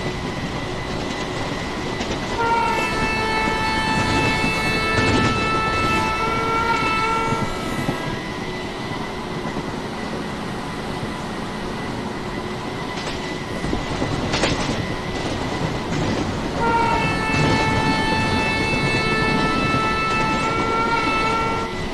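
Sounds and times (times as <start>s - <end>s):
train rumbling on rails: 0.0s - 21.9s
train multi-tone horn: 2.2s - 9.0s, 16.0s - 21.9s.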